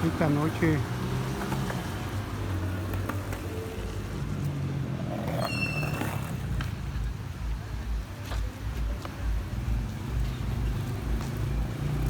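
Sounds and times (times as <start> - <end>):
brief high squeal: 5.4 - 6.3
vehicle engine humming: 6.3 - 12.0.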